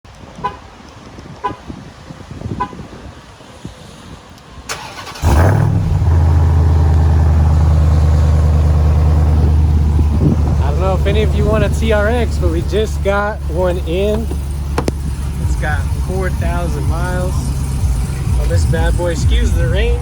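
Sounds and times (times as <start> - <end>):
car engine starting and idling: 4.6 - 20.0.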